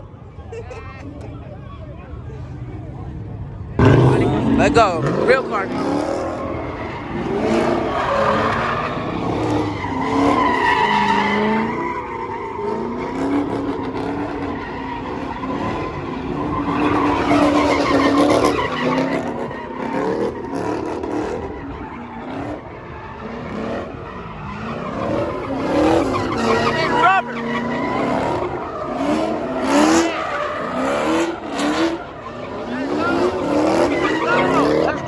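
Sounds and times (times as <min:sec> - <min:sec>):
car tires squealing: 0:03.8 - 0:35.0
engine revving high: 0:03.8 - 0:35.0.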